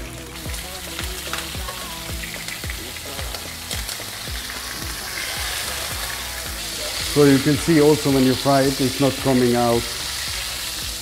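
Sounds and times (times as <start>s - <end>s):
background music beat: 0.0s - 11.0s
fish sizzling in hot oil: 0.0s - 11.0s.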